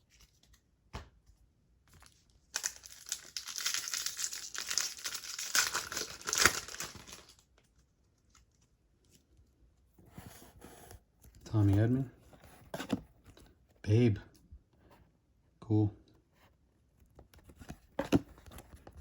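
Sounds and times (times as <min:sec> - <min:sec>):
plastic wrapper crinkling: 0:02.0 - 0:08.5.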